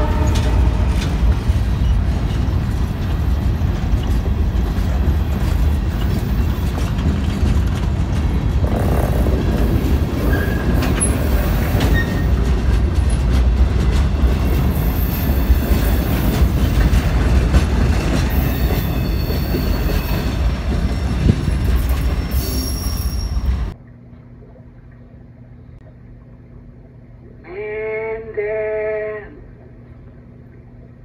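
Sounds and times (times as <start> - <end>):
train wheels rumbling on rails: 0.0 - 23.8
high wheel squeals: 10.2 - 12.4, 18.3 - 23.8.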